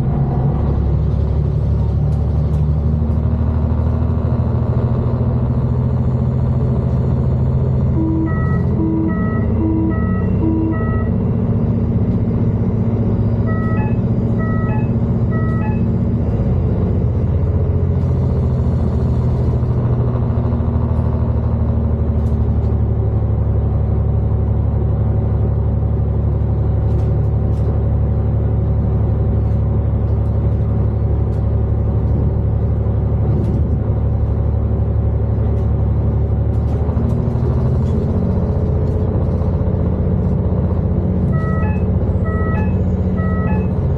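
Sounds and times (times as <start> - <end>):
diesel train engines rumbling: 0.0 - 43.9
electronic beeps: 8.0 - 11.2, 13.4 - 15.9, 41.4 - 43.8.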